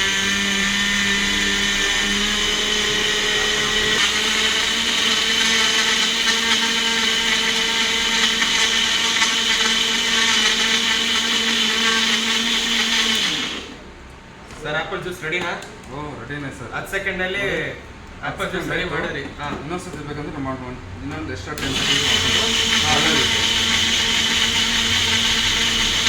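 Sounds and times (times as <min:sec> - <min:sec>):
blender motor winding down: 0:00.0 - 0:13.8, 0:21.6 - 0:26.0
blender motor whining: 0:00.0 - 0:13.9, 0:21.6 - 0:26.0.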